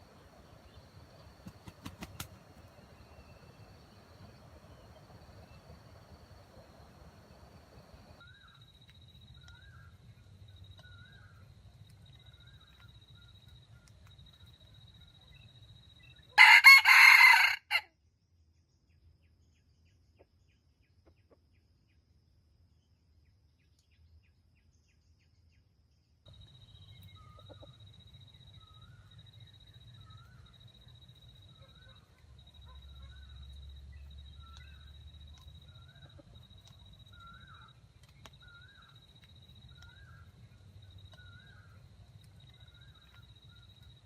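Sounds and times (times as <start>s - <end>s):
small birds chirping: 0.0s - 16.4s, 22.8s - 44.0s
rooster crowing: 16.4s - 17.9s.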